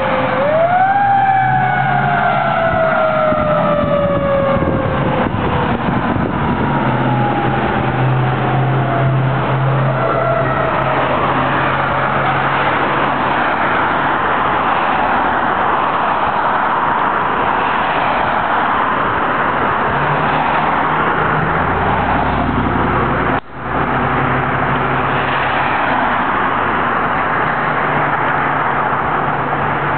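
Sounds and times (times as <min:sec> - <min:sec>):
fire engine running: 0:00.0 - 0:15.9
road and traffic noise: 0:00.0 - 0:29.9.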